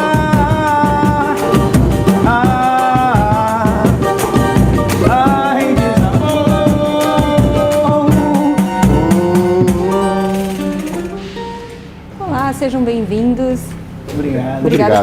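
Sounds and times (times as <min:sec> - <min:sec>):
person singing: 0:00.0 - 0:11.7
hand percussion beat: 0:00.0 - 0:12.0
live samba band playing: 0:00.0 - 0:12.7.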